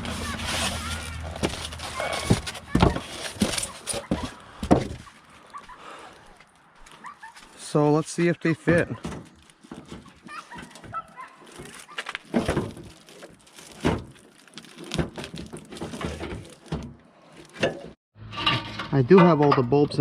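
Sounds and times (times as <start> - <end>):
plastic parts clicking and rattling: 8.8 - 17.9.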